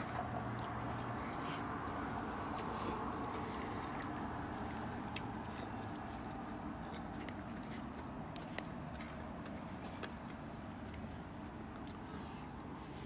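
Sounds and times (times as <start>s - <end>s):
chewing with wet clicks: 0.0s - 12.8s
city traffic hum: 0.0s - 13.0s.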